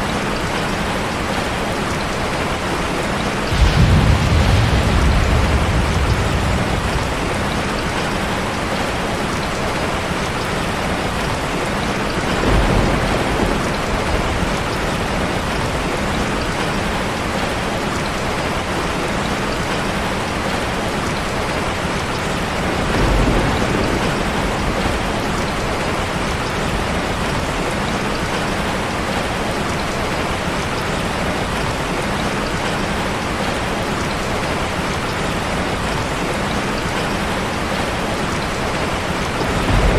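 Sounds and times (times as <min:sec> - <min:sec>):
heavy rain: 0:00.0 - 0:39.9
low rumble: 0:03.5 - 0:08.4.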